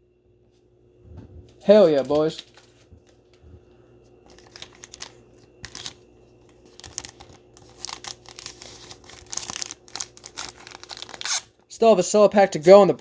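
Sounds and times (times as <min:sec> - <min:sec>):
plastic packaging crinkling: 0:04.2 - 0:11.6.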